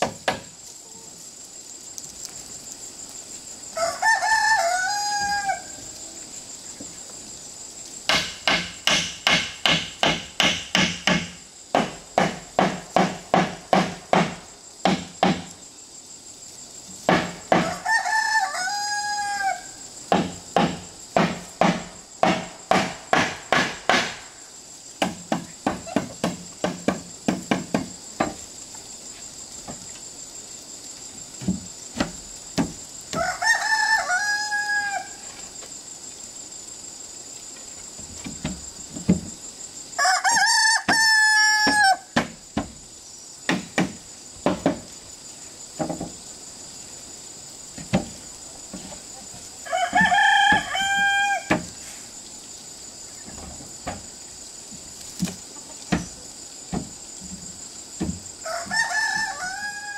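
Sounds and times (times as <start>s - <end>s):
tool knocking on wood: 0.0s - 0.5s, 8.1s - 15.5s, 20.1s - 24.2s, 25.0s - 28.4s, 43.5s - 44.8s
high insect buzz: 0.0s - 59.9s
rooster crowing: 3.7s - 6.0s, 17.5s - 19.9s, 33.1s - 35.3s, 40.0s - 42.2s, 49.6s - 51.6s, 58.4s - 59.9s.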